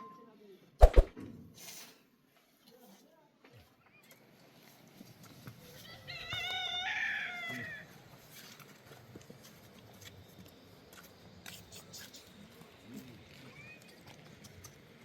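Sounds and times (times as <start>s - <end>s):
rooster crowing: 6.0s - 7.9s
light clicks on ground: 8.4s - 15.0s.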